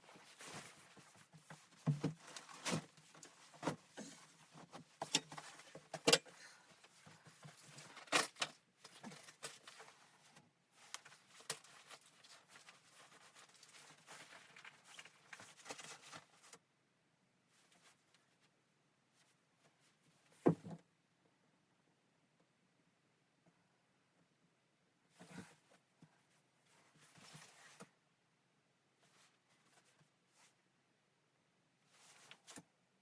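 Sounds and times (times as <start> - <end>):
soft rustling: 0.0 - 5.9, 8.8 - 16.6.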